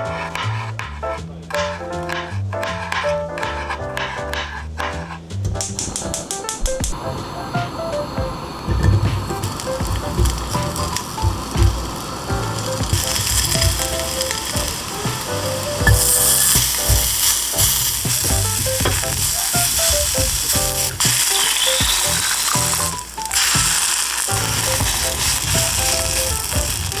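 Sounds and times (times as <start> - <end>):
garlic sizzling in a frying pan: 8.8 - 27.0.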